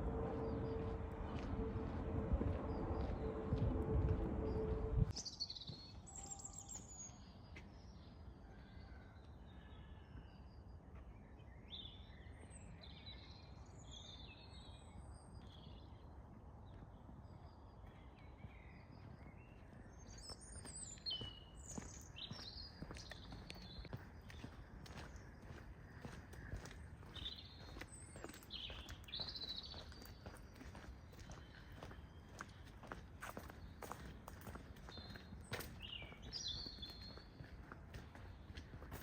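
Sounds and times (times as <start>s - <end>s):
songbirds chirping and singing: 17.5s - 39.0s.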